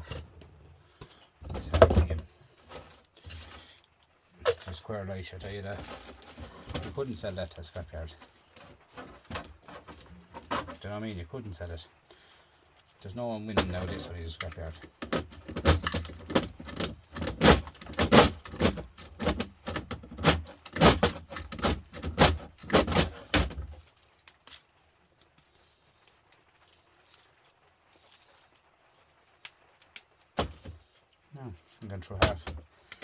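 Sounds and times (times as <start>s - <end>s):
metal pieces clinking and clattering: 5.4s - 10.9s, 13.6s - 30.7s.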